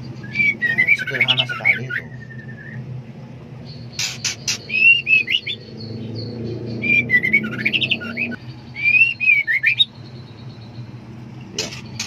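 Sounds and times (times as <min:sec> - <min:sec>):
bird whistled notes: 0:00.2 - 0:02.8, 0:03.9 - 0:10.7.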